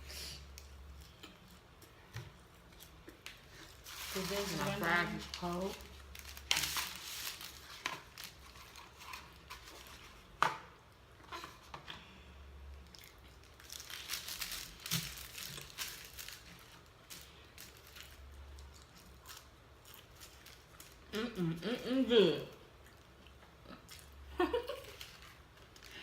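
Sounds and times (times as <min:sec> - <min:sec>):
paper wrapper crinkling: 0:03.2 - 0:10.3, 0:12.8 - 0:21.1, 0:24.6 - 0:26.0.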